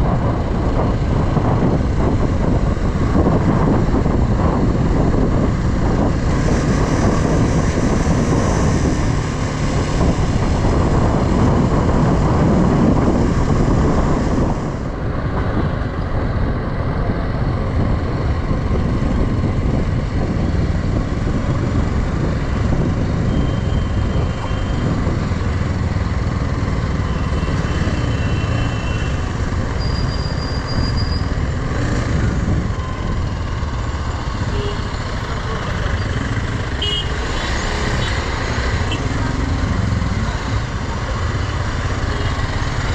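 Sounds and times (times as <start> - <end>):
wind rush: 0.0 - 34.0.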